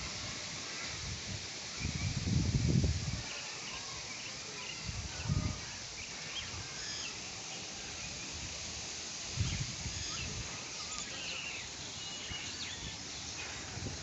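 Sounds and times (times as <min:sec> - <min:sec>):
wind rumbling on microphone: 0:00.0 - 0:03.4, 0:04.8 - 0:05.9, 0:08.2 - 0:10.9, 0:12.3 - 0:14.0
wind blowing: 0:00.0 - 0:04.0, 0:04.7 - 0:14.0
faint high chirping: 0:03.3 - 0:08.4, 0:09.4 - 0:13.8.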